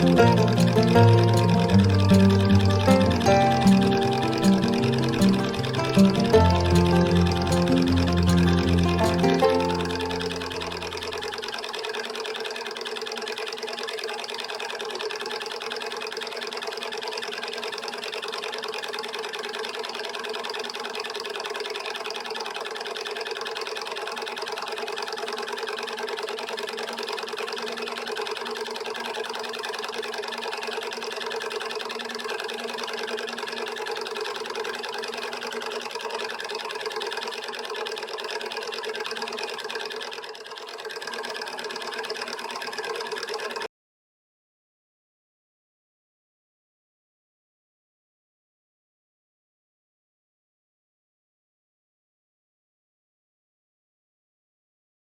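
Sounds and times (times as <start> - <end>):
stirling engine clattering: 0.0 - 12.9.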